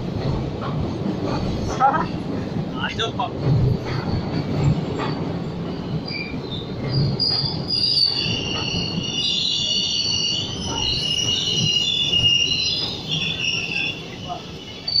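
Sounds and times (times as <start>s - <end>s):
train rumbling on rails: 0.0s - 15.0s
high wheel squeal: 5.7s - 15.0s.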